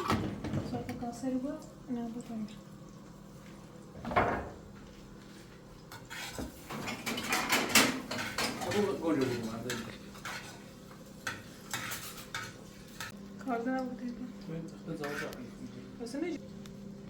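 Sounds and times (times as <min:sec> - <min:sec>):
dishes and cutlery clinking: 0:05.9 - 0:13.2.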